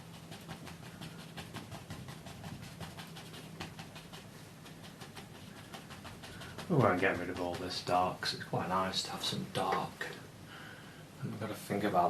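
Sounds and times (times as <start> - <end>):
brush scrubbing on canvas: 0.0 - 9.5
low steady hum: 0.0 - 12.0.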